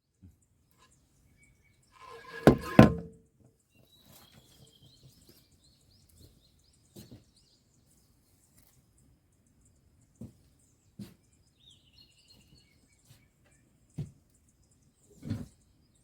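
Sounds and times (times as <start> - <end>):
knocks on metal filter with ringing: 2.0 - 3.2.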